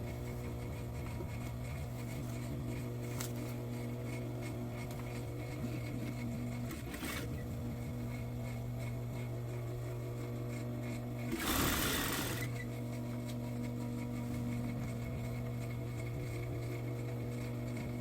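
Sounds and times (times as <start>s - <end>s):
sewing machine motor humming: 4.0s - 9.3s, 10.9s - 18.0s.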